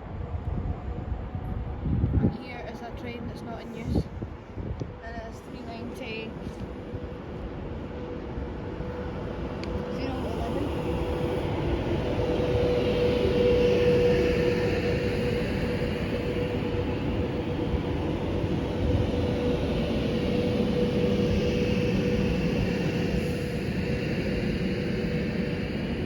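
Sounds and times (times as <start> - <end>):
train wheels rumbling on rail: 0.0 - 26.0
electric traction hum: 5.6 - 26.0.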